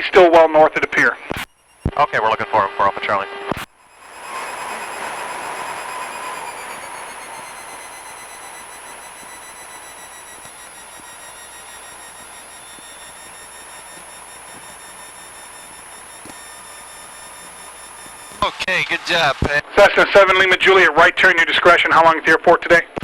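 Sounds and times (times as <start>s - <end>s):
steady high tone: 0.1s - 19.6s
airplane engine at low power: 3.7s - 19.5s
rushing air: 3.9s - 9.0s.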